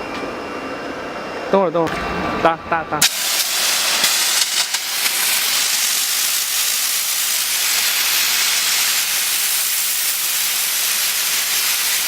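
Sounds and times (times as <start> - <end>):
steam jet hissing: 3.0 - 12.0.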